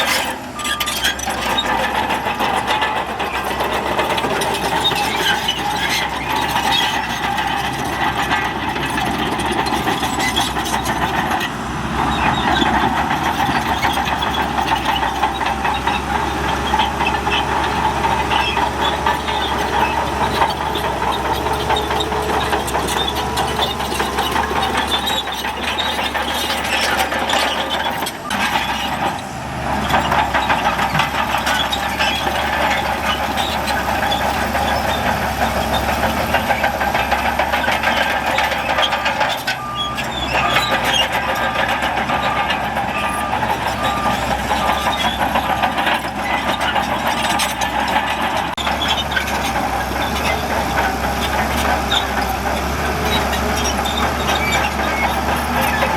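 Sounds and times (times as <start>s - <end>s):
heavy diesel machinery running: 0.0s - 55.9s
reversing alarm beeping: 39.6s - 45.5s.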